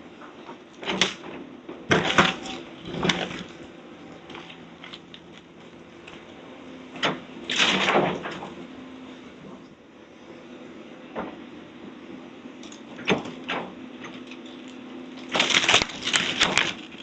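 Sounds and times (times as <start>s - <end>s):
diesel engine running: 0.0s - 17.0s
debris crashing and clattering: 1.9s - 3.6s, 15.2s - 17.0s.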